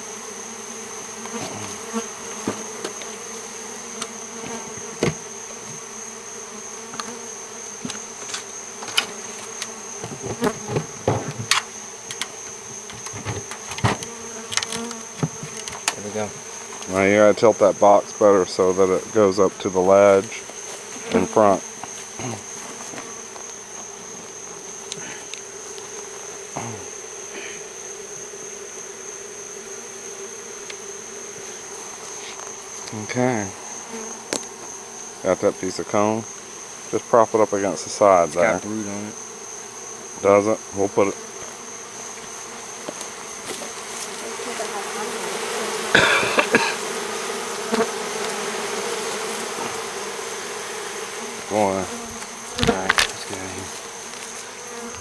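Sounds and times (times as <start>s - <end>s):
bee swarm buzzing: 0.0s - 55.0s
high-pitched insect trill: 0.0s - 55.0s
knocks on hive box: 2.4s - 3.0s, 4.0s - 5.9s, 8.8s - 16.0s, 51.9s - 53.3s.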